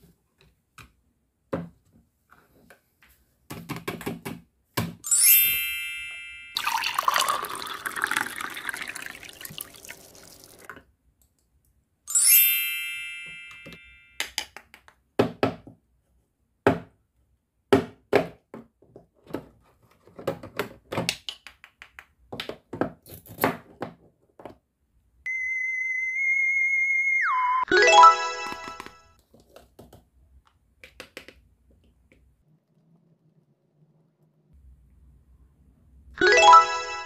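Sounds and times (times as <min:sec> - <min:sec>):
bright chime: 0:05.1 - 0:07.2, 0:12.1 - 0:14.2, 0:27.7 - 0:29.2, 0:36.2 - 0:37.0
water pouring into plastic cup: 0:06.6 - 0:10.8
high electronic tone: 0:25.3 - 0:29.0.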